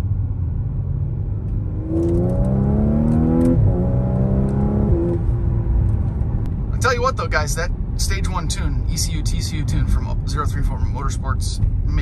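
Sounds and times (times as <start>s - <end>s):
car engine revving: 0.8s - 6.6s.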